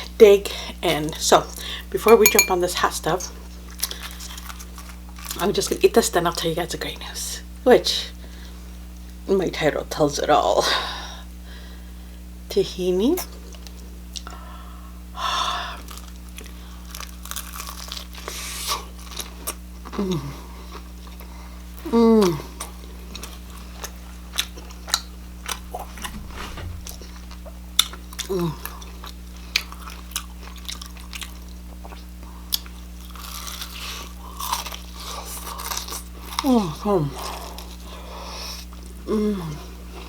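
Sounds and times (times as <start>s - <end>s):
crunchy bites and chewing: 15.9s - 19.2s, 32.6s - 36.4s.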